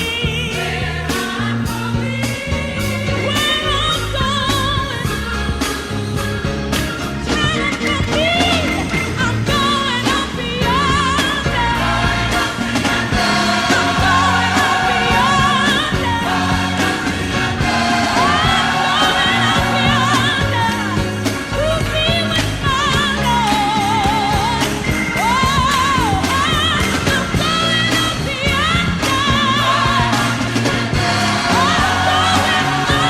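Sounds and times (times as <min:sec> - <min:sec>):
instrumental backing with bass: 0:00.0 - 0:33.0.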